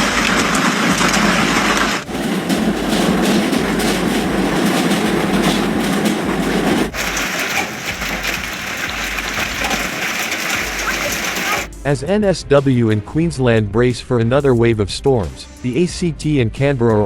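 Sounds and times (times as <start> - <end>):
hailstones pelting hard surfaces: 0.0 - 11.7.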